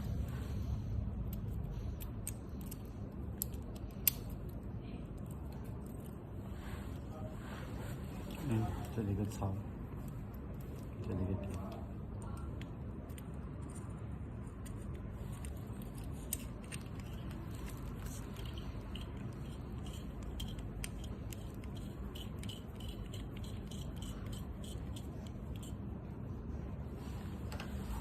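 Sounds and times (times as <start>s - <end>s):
steady low background noise: 0.0s - 28.0s
hand tools clicking and rattling: 16.3s - 25.7s.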